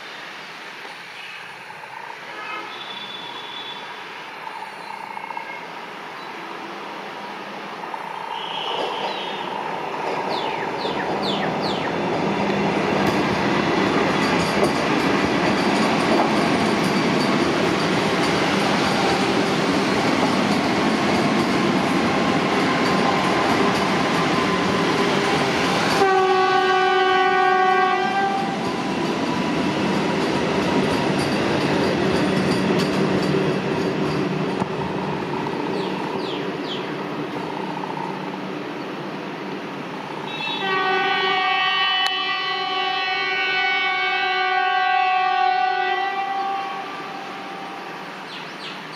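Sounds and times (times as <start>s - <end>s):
train horn: 2.3s - 3.9s, 8.3s - 9.5s, 25.9s - 28.6s, 40.3s - 47.8s
train wheels rumbling on rail: 7.6s - 48.9s.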